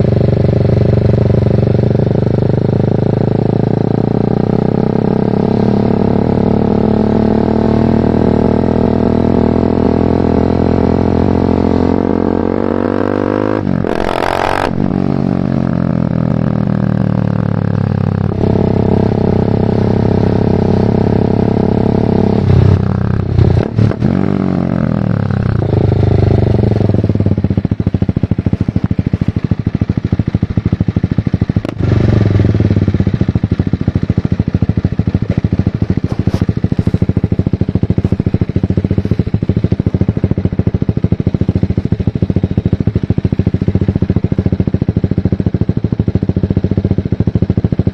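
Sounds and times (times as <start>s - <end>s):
motorcycle engine running: 0.0s - 47.9s
loud whoosh: 13.6s - 15.9s.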